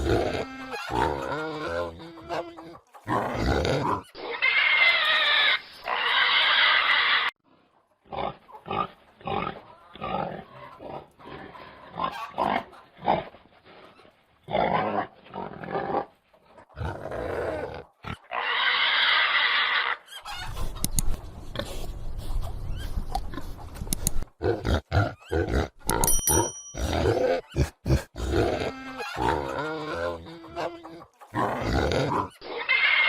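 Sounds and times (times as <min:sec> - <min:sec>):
pig grunts: 0:00.0 - 0:04.1, 0:24.4 - 0:26.1, 0:26.8 - 0:32.6
pigs squealing: 0:00.0 - 0:07.4, 0:08.1 - 0:13.3, 0:16.8 - 0:20.9, 0:24.4 - 0:26.1, 0:26.8 - 0:33.0.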